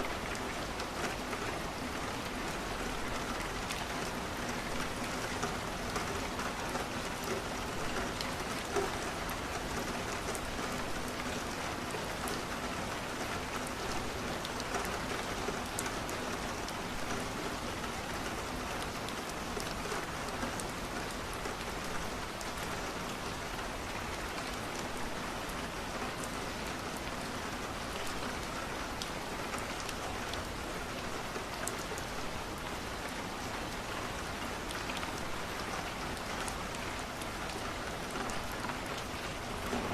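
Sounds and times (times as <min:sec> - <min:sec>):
rain on a window: 0:00.0 - 0:39.9.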